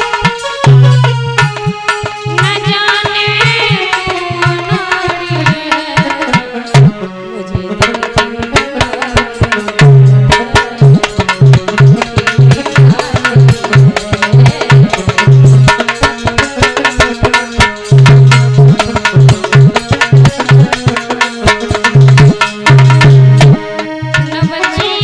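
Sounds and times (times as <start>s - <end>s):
fast hand-drum rhythm: 0.0s - 7.0s, 7.6s - 25.0s
held melodic tones: 0.0s - 25.0s.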